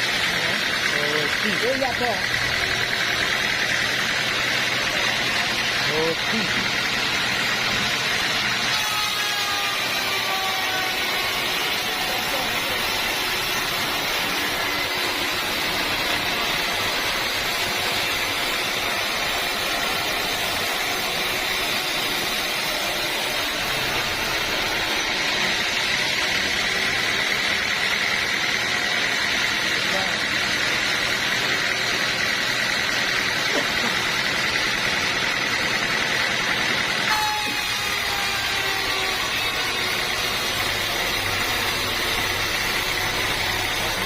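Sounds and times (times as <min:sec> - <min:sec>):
band saw cutting log: 0:00.0 - 0:44.0.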